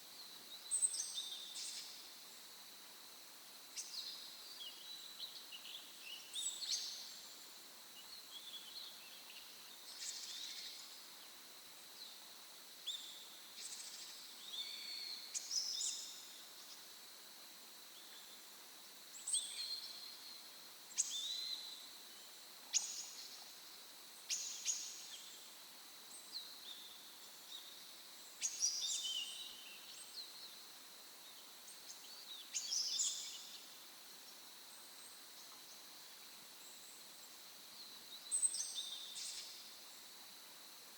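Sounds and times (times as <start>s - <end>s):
songbirds chirping: 24.2s - 40.4s.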